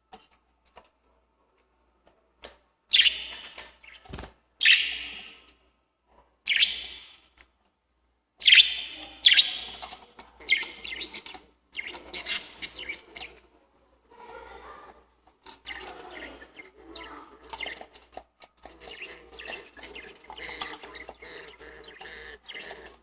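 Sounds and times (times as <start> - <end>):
lovebirds chirping: 2.9 - 5.5, 6.4 - 7.3, 8.4 - 13.4, 15.5 - 23.0.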